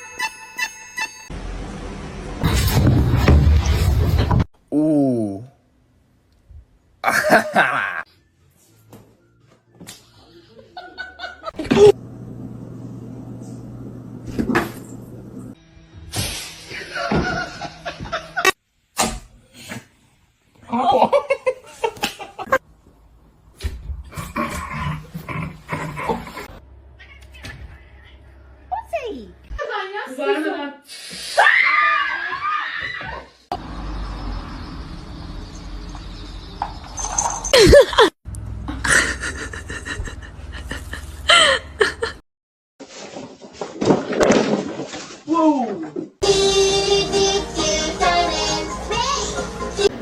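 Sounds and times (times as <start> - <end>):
person laughing: 7.0 - 8.1, 20.7 - 22.6, 37.6 - 38.1, 38.7 - 42.2.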